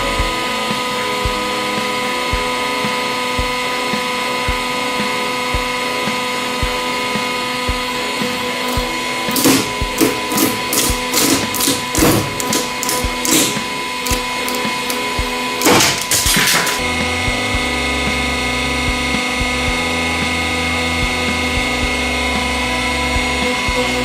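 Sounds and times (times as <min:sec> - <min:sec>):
hydraulic press humming: 0:00.0 - 0:23.4
loud sharp cracks: 0:09.3 - 0:15.0, 0:15.6 - 0:16.8.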